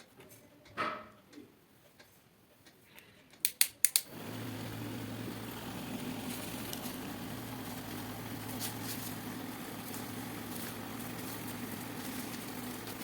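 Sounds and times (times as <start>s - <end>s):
sharp clicks: 3.4s - 4.1s
table fan motor humming: 4.1s - 13.0s.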